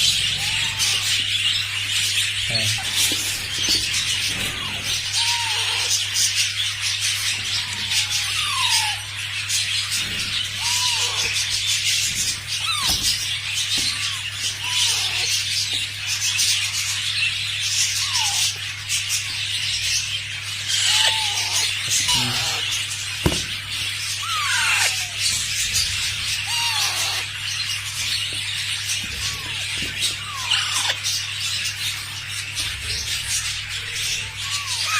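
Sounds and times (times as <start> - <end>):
birds chattering: 0.0 - 34.9.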